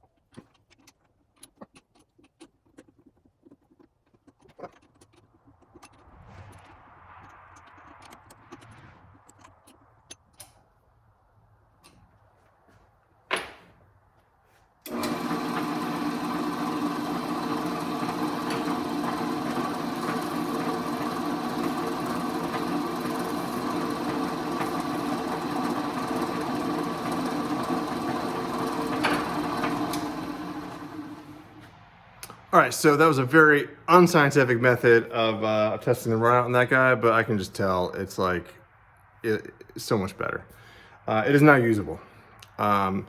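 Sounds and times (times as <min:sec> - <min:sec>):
small clicks and handling: 0:00.0 - 0:10.7
drill press motor running: 0:14.8 - 0:31.7.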